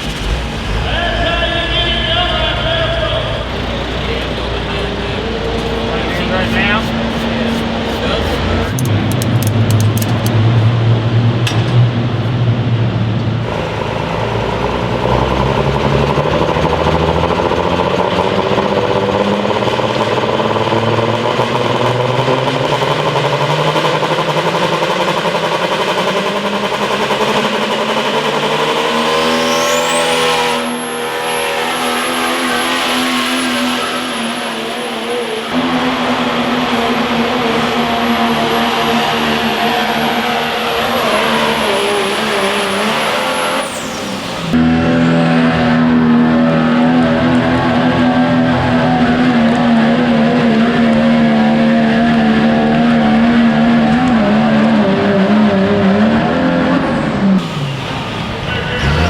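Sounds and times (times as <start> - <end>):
engine running at high revs: 0.0 - 1.1, 2.5 - 59.0
high-pitched whine: 0.0 - 9.0, 28.8 - 46.7.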